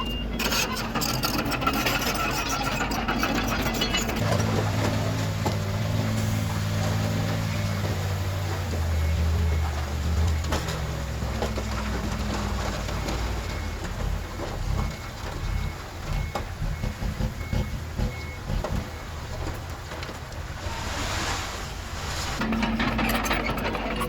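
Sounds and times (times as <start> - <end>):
backup alarm beeping: 0.0 - 0.5, 3.9 - 19.5
diesel engines running: 0.0 - 24.0
brief rush of noise: 20.6 - 22.4.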